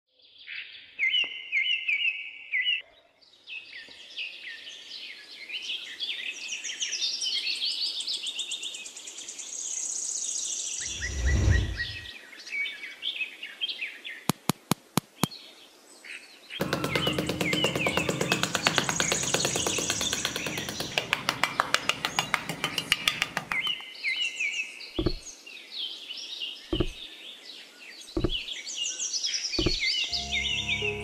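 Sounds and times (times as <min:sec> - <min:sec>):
songbirds chirping and trilling: 0:15.2 - 0:31.0
sharp clicks: 0:16.6 - 0:23.8.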